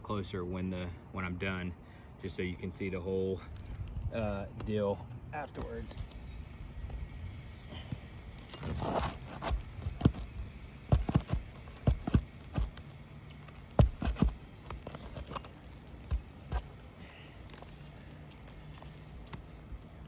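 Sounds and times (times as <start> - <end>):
tool scraping roof shingle: 8.4 - 19.5.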